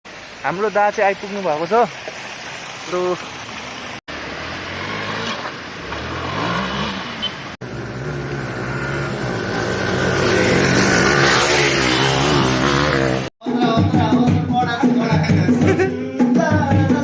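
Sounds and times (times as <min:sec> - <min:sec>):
motorcycle engines revving: 0:04.1 - 0:13.3.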